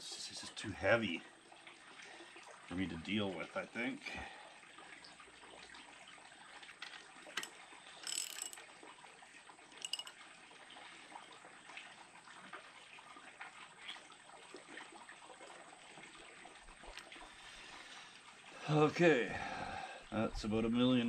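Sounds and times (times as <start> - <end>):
metal tools clicking and knocking: 6.8 - 8.6, 9.8 - 10.2
short metallic rings: 8.0 - 8.6, 9.8 - 10.2.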